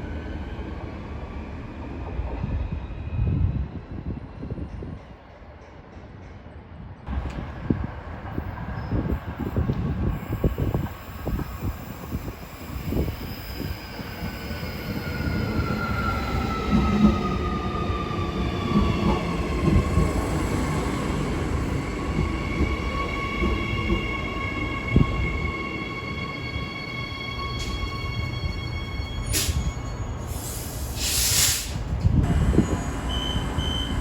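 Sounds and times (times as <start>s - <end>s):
electric train whine: 7.1s - 31.1s.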